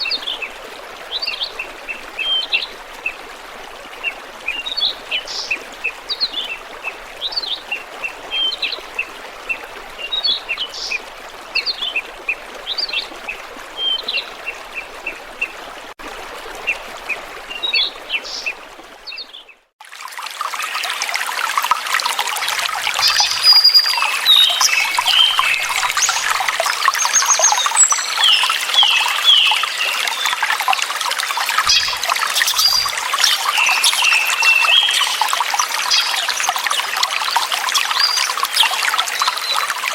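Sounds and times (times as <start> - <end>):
water trickling: 0.0 - 39.9
small birds chirping: 22.9 - 30.4, 31.4 - 39.7.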